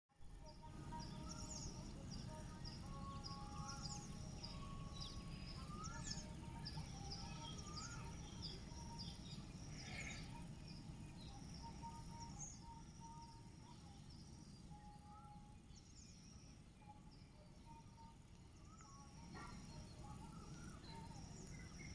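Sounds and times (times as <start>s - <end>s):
small birds chirping: 0.2s - 21.9s
low whistled bird notes: 3.2s - 16.3s.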